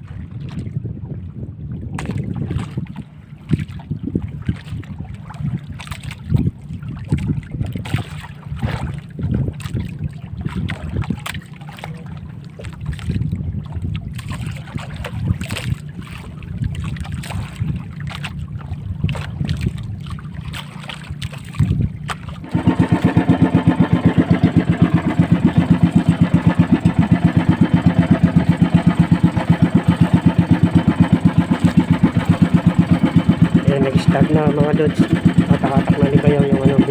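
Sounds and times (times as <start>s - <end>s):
wind and water rumble: 0.0s - 36.9s
boat engine chugging: 3.0s - 36.9s.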